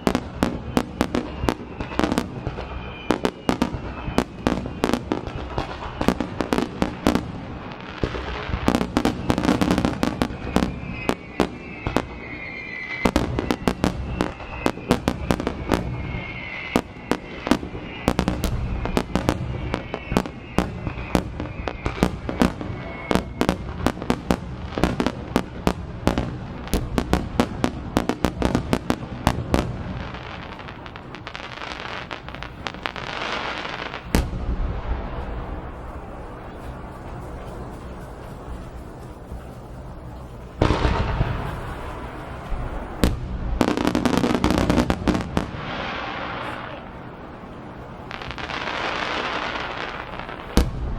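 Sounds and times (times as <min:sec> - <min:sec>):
fireworks bursting and crackling: 0:00.0 - 0:50.9
whistling fireworks: 0:00.0 - 0:50.9
heavy firework bang: 0:34.0 - 0:37.5, 0:40.6 - 0:47.0, 0:48.2 - 0:50.9.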